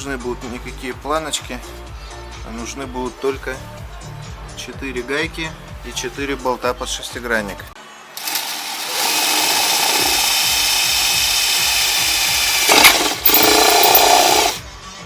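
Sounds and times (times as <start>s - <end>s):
power tool motor whining: 8.2s - 14.6s.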